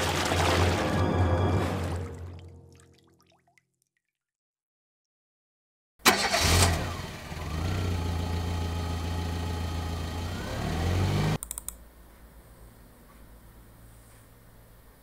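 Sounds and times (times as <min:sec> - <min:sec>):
car engine running: 0:06.5 - 0:11.4
short clicks: 0:11.4 - 0:11.8.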